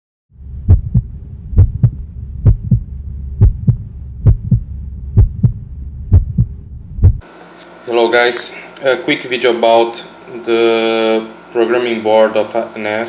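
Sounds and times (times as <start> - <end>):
low hum: 0.3 - 7.4
heartbeat thumps: 0.4 - 7.2.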